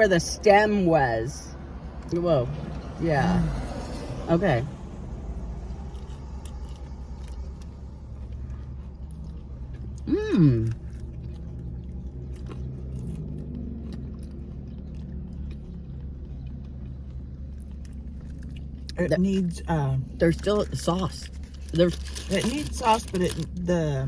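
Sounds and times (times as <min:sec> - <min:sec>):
steady low rumble: 0:00.0 - 0:24.0
chewing crunchy food: 0:04.8 - 0:19.4, 0:20.2 - 0:23.9
person humming mmm: 0:10.0 - 0:10.9.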